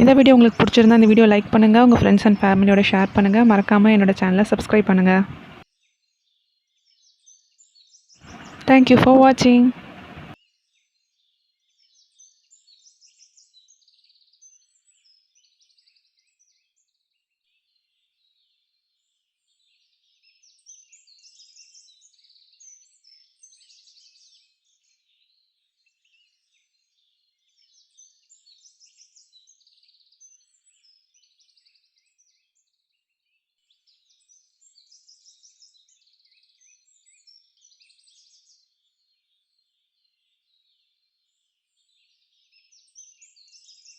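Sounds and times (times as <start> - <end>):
faint birds chirping: 0.0 - 5.6, 7.9 - 10.4.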